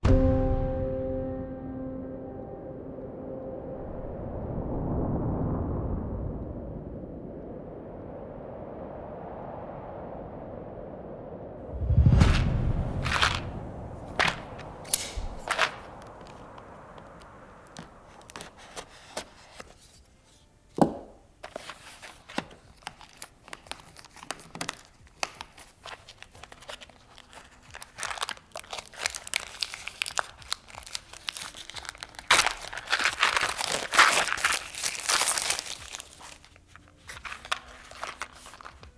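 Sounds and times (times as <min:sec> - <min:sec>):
plastic wrap crumpling: 0:13.0 - 0:20.4, 0:21.4 - 0:38.9.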